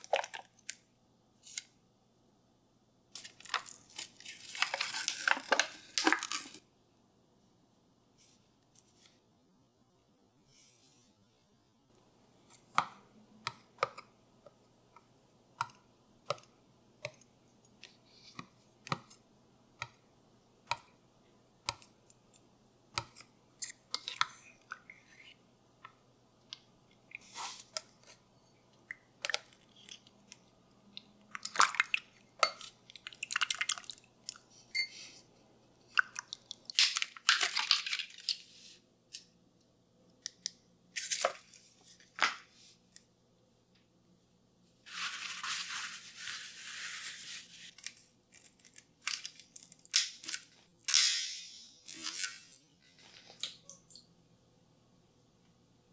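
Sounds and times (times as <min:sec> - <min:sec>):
rustling and scraping: 0:44.9 - 0:47.9.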